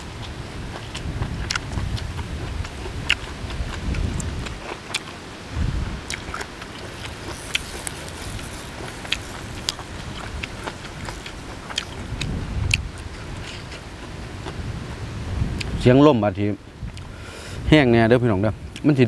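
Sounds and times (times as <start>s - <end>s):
person chewing crunchy food: 0.0s - 14.7s
wind buffeting microphone: 0.0s - 19.0s.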